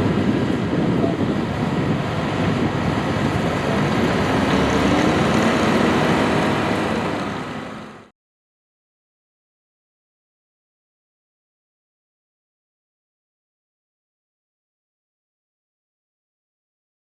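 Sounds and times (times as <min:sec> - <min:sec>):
tractor engine running under load: 0:00.0 - 0:08.1.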